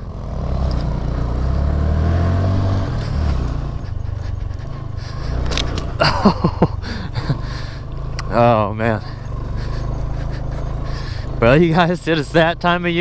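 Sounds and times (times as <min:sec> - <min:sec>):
small engine running: 0:00.0 - 0:13.0
sharp clicks: 0:05.4 - 0:06.0.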